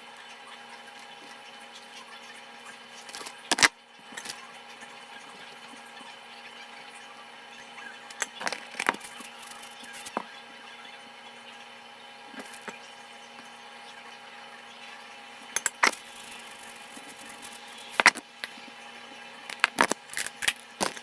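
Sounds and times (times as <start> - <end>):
appliance hum: 0.0 - 21.0.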